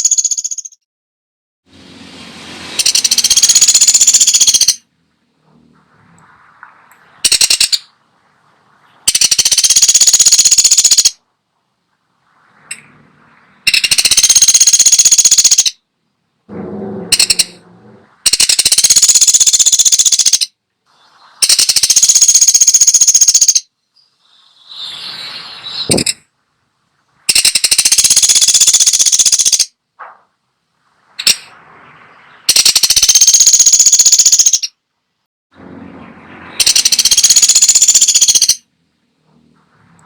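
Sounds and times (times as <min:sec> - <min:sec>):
woodpecker rattling calls: 0:00.0 - 0:00.8, 0:02.8 - 0:04.8, 0:06.2 - 0:08.0, 0:08.8 - 0:11.2, 0:13.7 - 0:15.8, 0:17.1 - 0:20.5, 0:21.4 - 0:25.0, 0:25.6 - 0:26.2, 0:27.3 - 0:29.7, 0:31.2 - 0:31.5, 0:32.2 - 0:34.8, 0:36.6 - 0:38.6.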